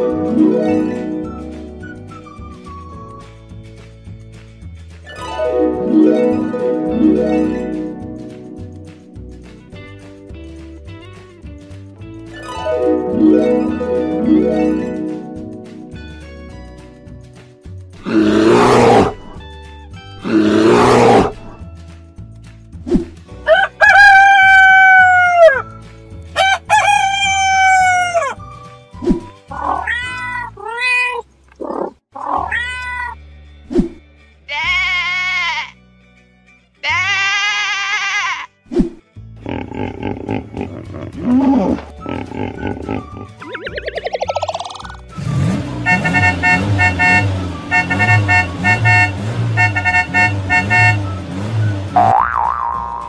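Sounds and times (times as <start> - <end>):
cartoon cat meowing: 29.5 - 33.2, 34.5 - 35.7, 36.8 - 38.5
wavering sheep bleat: 34.5 - 35.8
car engine running: 45.2 - 52.1
car horn short beeps: 45.8 - 51.2.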